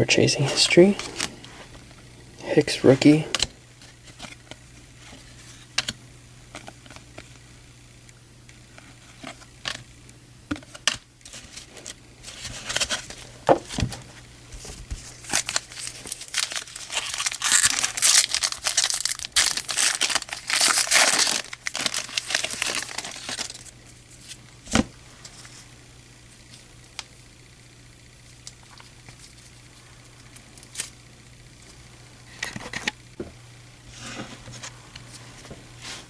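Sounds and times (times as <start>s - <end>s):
wrapper tearing and crinkling: 15.0s - 24.4s.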